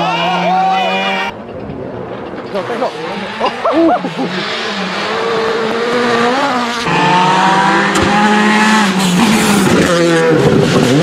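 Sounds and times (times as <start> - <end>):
rally car engine at high revs: 2.3 - 11.0.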